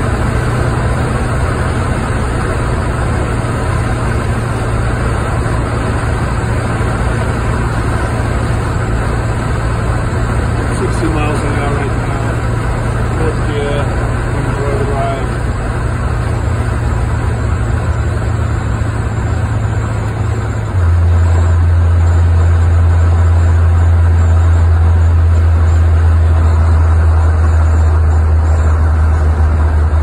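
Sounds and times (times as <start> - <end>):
car engine droning: 0.0 - 30.0
road noise: 0.0 - 30.0.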